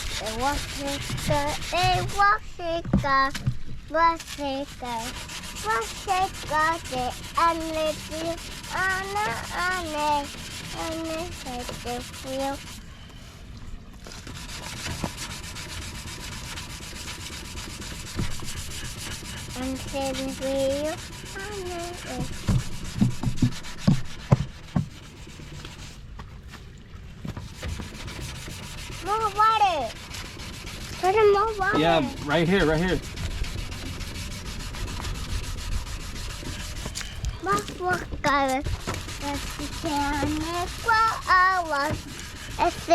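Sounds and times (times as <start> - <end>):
wet sanding scrape: 0.0 - 12.8, 14.0 - 26.1, 27.3 - 42.9
child singing: 0.2 - 12.6, 19.6 - 22.4, 37.4 - 42.9
knocks: 22.3 - 24.9.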